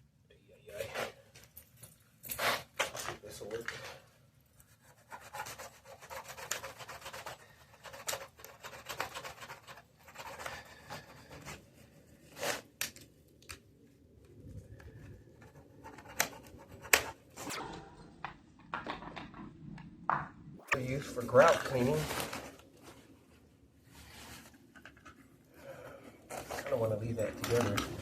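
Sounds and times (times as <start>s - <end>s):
sharp knocks: 17.5s - 20.8s.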